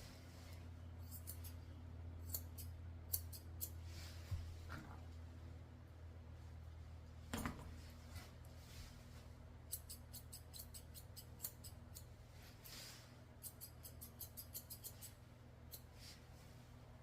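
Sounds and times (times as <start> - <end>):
scissors snipping hair: 1.0 - 1.6, 2.2 - 3.8, 9.6 - 12.1, 13.4 - 15.9.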